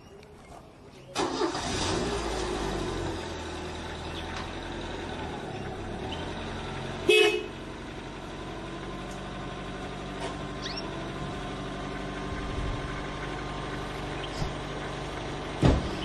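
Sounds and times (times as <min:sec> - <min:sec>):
horn honk: 0:07.0 - 0:07.6.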